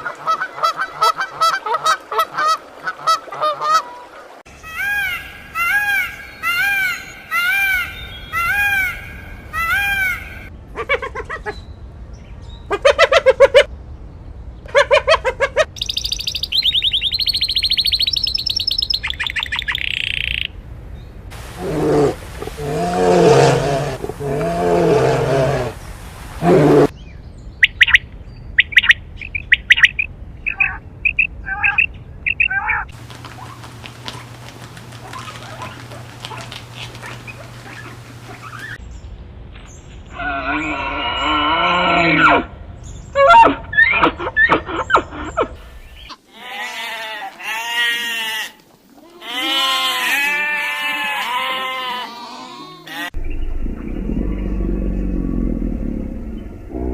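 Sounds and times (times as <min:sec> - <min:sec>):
high fast-trilling birdsong: 0:15.7 - 0:20.6, 0:26.8 - 0:33.6, 0:53.2 - 0:56.7.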